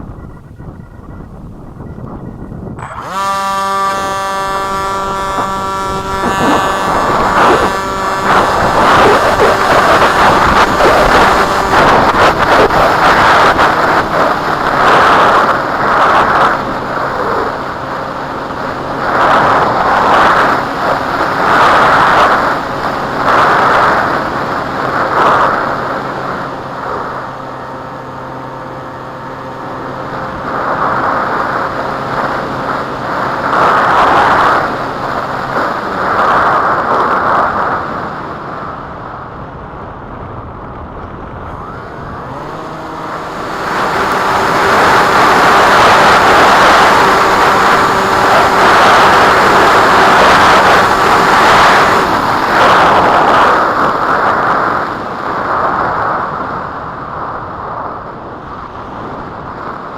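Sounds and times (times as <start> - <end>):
gusty wind buffeting microphone: 0.0 - 59.9.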